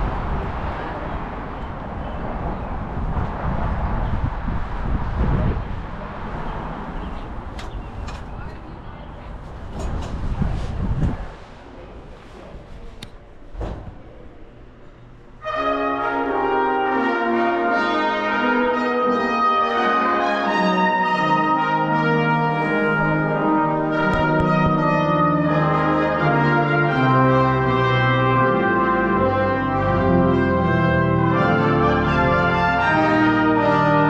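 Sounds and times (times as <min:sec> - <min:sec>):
faint wind: 0:00.0 - 0:15.4, 0:22.2 - 0:26.3
street noise: 0:00.0 - 0:34.0
brass ensemble playing chords: 0:15.4 - 0:34.0.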